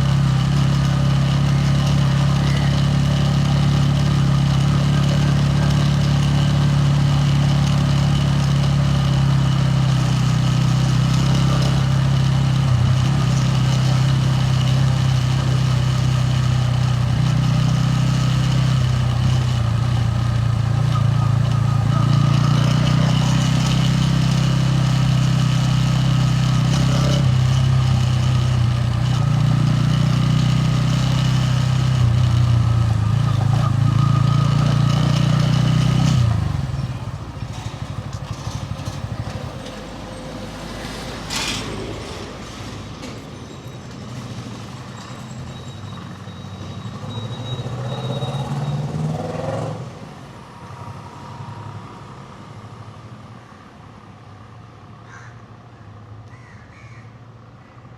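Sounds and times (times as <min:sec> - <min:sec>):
motorcycle engine running: 0:00.0 - 0:41.4
faint street traffic: 0:00.0 - 0:57.9.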